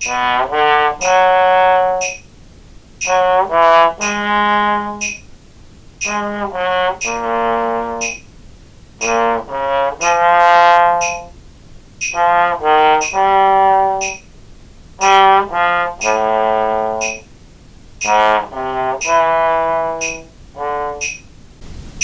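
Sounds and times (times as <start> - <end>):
trombone playing: 0.0 - 2.2, 3.0 - 5.2, 6.0 - 8.2, 9.0 - 11.4, 12.0 - 14.2, 15.0 - 17.3, 18.0 - 21.2
metronome clicking: 0.0 - 2.3, 2.9 - 8.4, 9.0 - 14.4, 15.0 - 17.4, 18.0 - 21.4.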